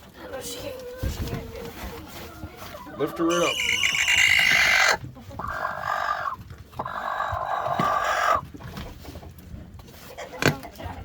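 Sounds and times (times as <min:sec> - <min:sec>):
hen squawking: 0:03.2 - 0:08.4.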